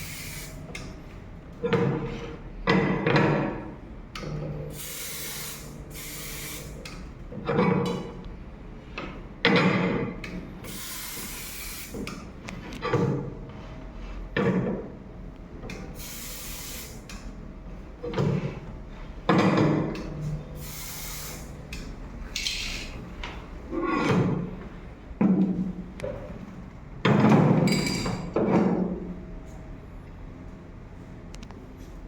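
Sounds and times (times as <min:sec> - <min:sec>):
aerosol spray hissing: 0:16.0 - 0:17.0, 0:20.6 - 0:21.5.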